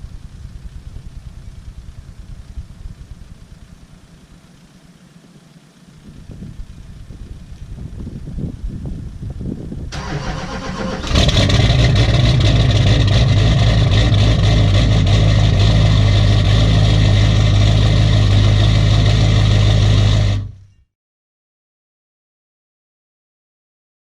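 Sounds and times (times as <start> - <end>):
diesel engine starting and running: 9.9 - 20.7.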